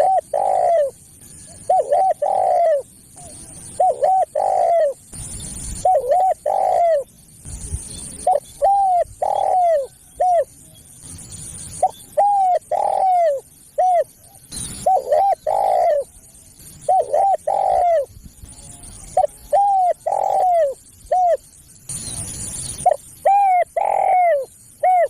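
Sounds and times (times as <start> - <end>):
dove cooing: 0.0 - 5.1, 5.8 - 7.1, 8.2 - 10.5, 11.8 - 16.2, 16.8 - 18.2, 18.9 - 21.4, 22.8 - 25.0.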